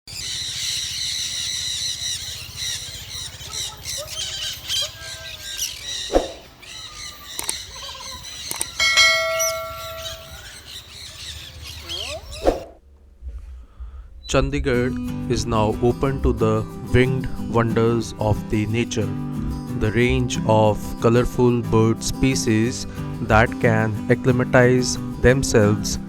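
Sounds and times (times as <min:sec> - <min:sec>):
parrots and birds calling: 0:00.1 - 0:12.5.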